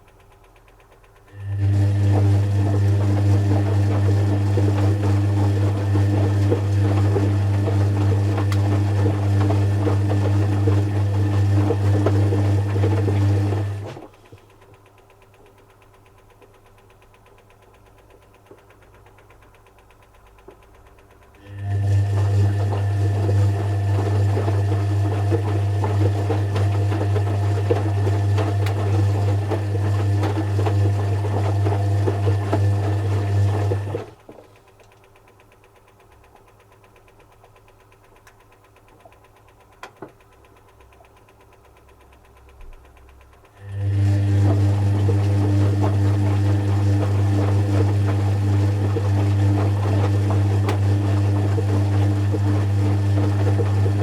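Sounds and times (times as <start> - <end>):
faint clicks: 0.0 - 1.4, 14.2 - 21.4, 34.3 - 43.7
washing machine humming: 0.0 - 54.0.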